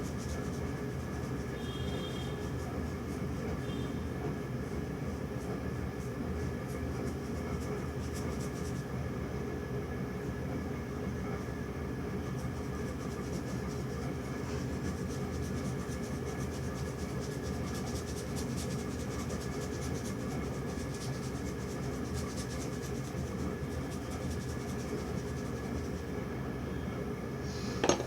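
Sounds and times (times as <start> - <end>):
brush scratching on canvas: 12.3 - 26.0.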